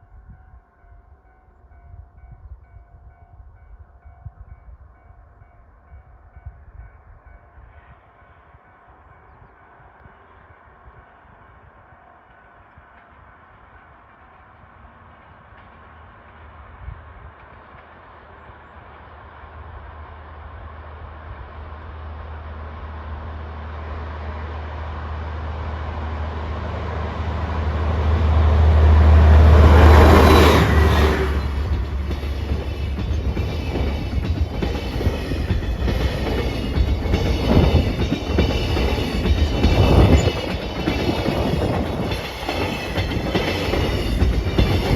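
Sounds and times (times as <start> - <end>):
diesel locomotive engine drone: 0.0 - 44.9
train cars clattering over rail joints: 30.0 - 44.9.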